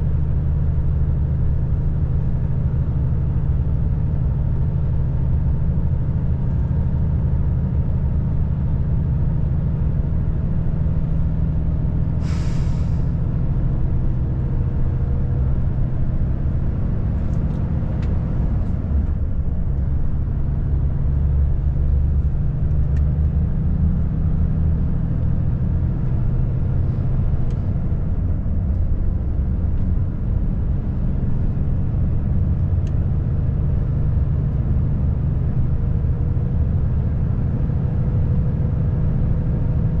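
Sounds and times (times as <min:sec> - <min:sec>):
truck diesel engine drone: 0:00.0 - 0:40.0
compressed air hiss: 0:12.2 - 0:13.2.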